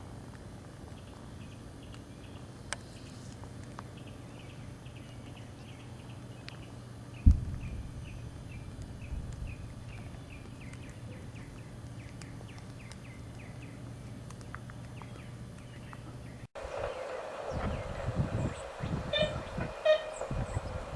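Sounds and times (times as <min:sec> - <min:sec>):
bird calling high notes: 0:16.8 - 0:20.9.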